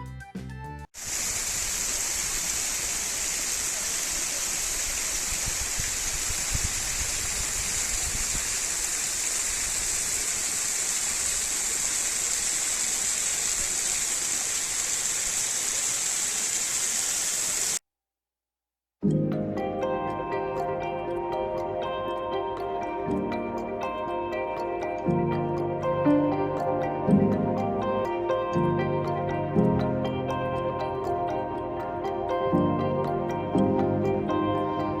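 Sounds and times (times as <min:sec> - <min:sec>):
waterfall rushing: 0:01.0 - 0:17.8.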